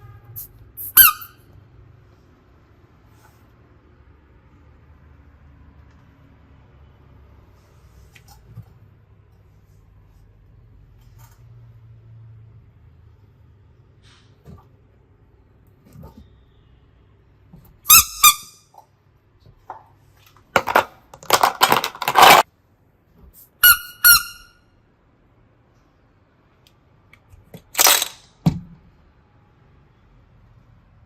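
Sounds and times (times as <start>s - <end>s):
slime squeaks: 0.4s - 1.4s, 23.4s - 24.5s.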